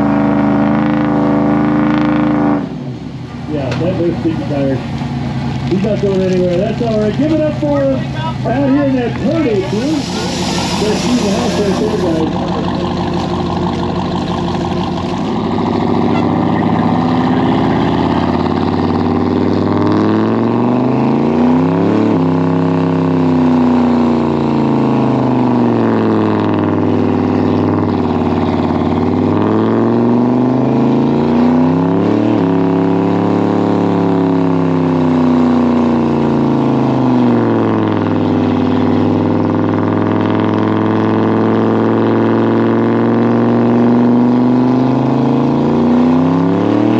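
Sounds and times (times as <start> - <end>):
truck engine revving high: 8.4 - 34.6.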